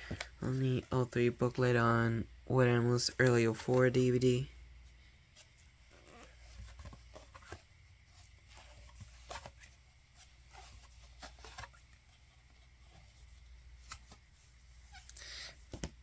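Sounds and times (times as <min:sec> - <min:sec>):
book pages turning: 0:00.0 - 0:02.0, 0:05.3 - 0:16.0.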